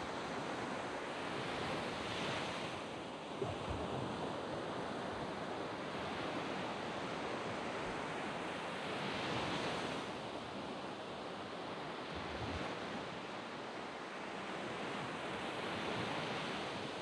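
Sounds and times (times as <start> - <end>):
waves washing up a sand beach: 0.0 - 17.0.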